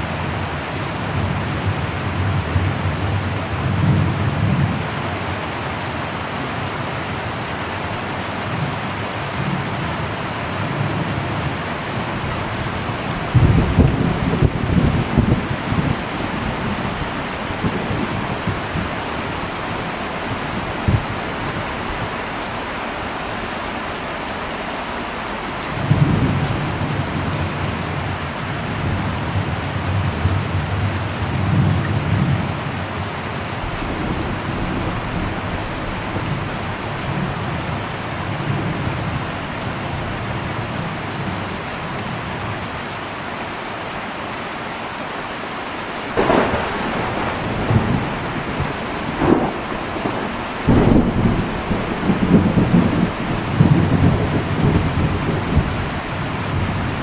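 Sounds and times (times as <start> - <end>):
heavy rain on a metal roof: 0.0 - 57.0
thunder rumbling: 8.1 - 22.8, 45.8 - 57.0.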